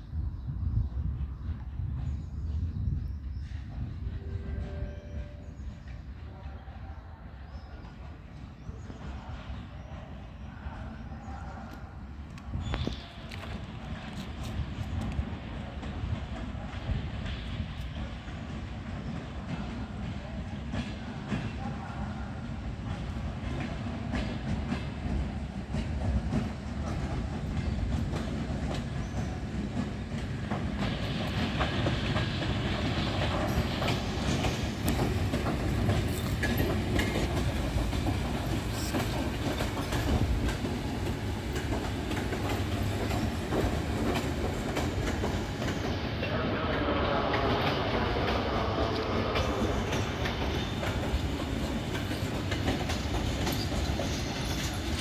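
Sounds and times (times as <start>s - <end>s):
train rumbling past: 0.0s - 55.0s
wheels clicking over rail joints: 25.8s - 46.0s, 49.4s - 55.0s.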